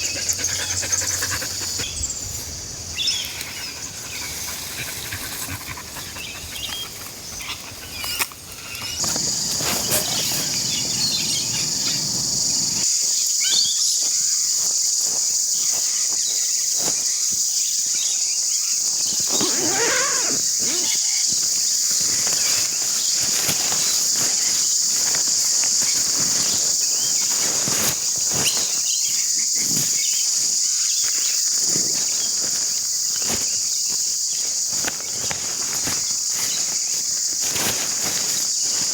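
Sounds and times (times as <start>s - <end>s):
high-pitched insect chorus: 0.0s - 38.9s
rustles and clicks of handling gear: 6.6s - 12.9s, 19.0s - 38.9s.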